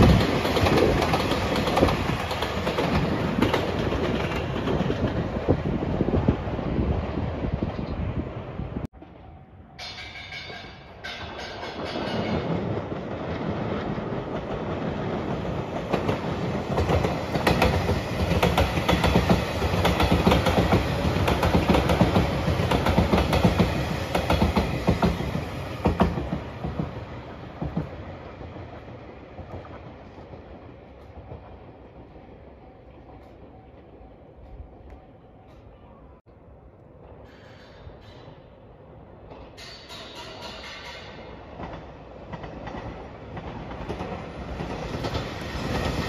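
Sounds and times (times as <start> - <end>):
electric train passing: 0.0 - 46.0
wheels clattering over rail joints: 9.8 - 28.0, 37.2 - 46.0.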